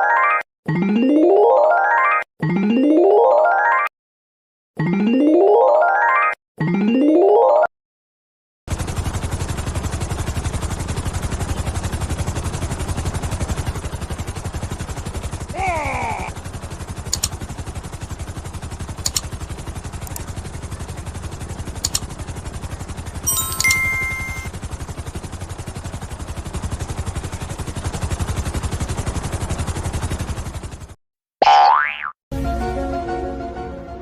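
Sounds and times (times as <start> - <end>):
helicopter rotor chopping: 8.7 - 31.0
sharp clicks: 17.1 - 17.4, 19.0 - 19.4, 21.8 - 22.1.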